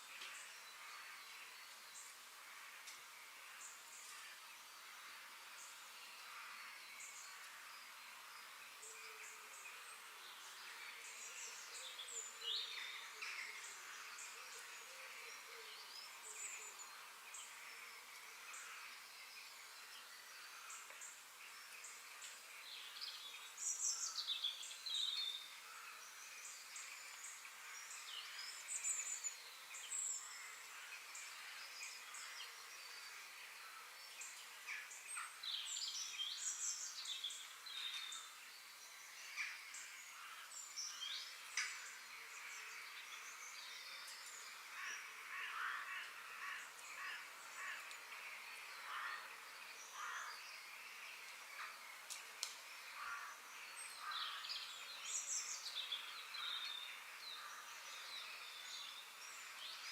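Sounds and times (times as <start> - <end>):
faint outdoor hiss: 0.0 - 59.9.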